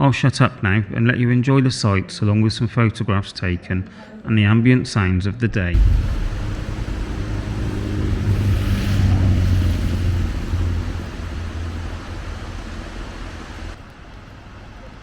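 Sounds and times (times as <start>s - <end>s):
vehicle engine passing by: 5.8s - 13.8s.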